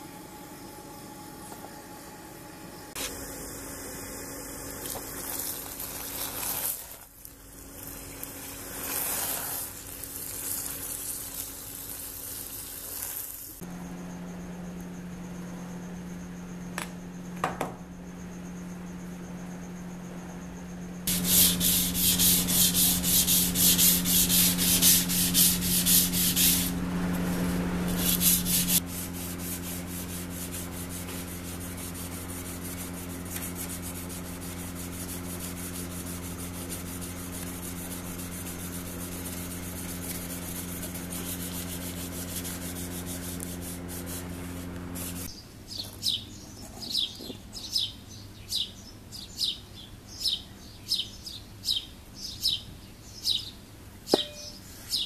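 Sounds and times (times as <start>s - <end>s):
sanding strokes on knife blade: 8.6s - 13.2s, 21.1s - 45.3s
motor humming: 18.0s - 45.3s
bird chirping: 45.3s - 55.0s.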